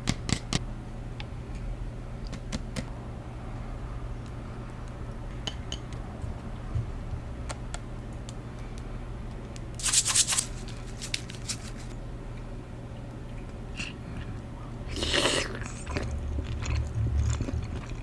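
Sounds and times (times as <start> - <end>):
low steady hum: 10.4 - 18.0.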